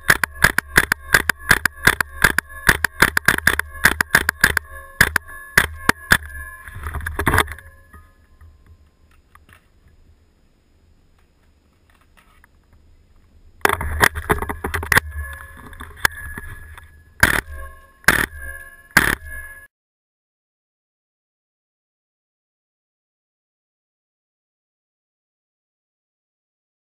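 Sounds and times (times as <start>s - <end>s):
airsoft rifle shots: 0.0s - 6.3s, 17.2s - 18.4s, 19.0s - 19.5s.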